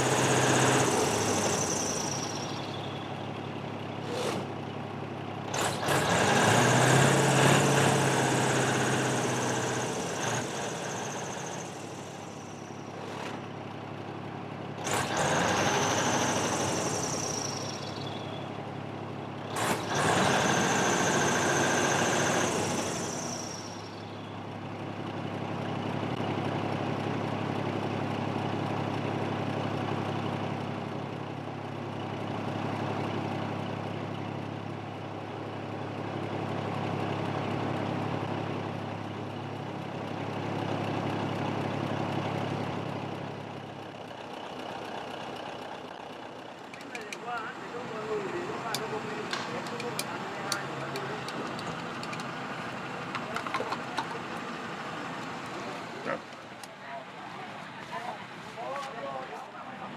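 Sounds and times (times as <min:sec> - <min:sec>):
large engine revving: 0:00.0 - 0:03.2, 0:04.0 - 0:04.8, 0:05.4 - 0:13.6, 0:14.8 - 0:18.4, 0:19.4 - 0:24.0, 0:46.6 - 0:58.4.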